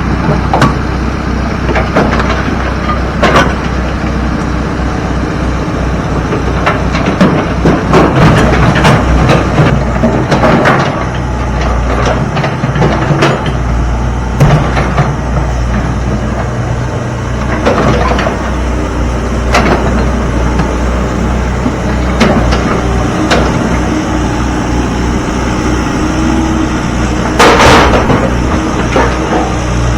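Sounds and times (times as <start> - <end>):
diesel engine running: 0.0 - 29.9
rocks clattering into steel truck bed: 14.4 - 29.9.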